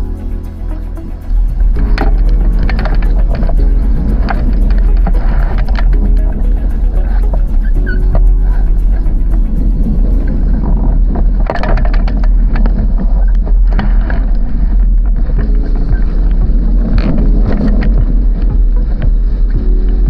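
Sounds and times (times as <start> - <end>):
water splashing against hull: 0.0 - 20.0
wind buffeting microphone: 0.0 - 20.0.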